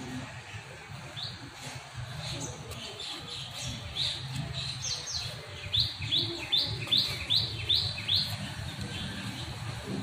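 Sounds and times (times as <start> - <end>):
bird chirping: 2.1 - 10.0.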